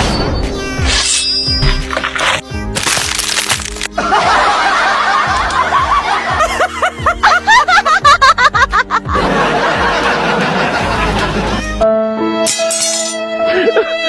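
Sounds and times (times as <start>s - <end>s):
background music: 0.0s - 14.0s
snickering laughter: 4.0s - 11.8s.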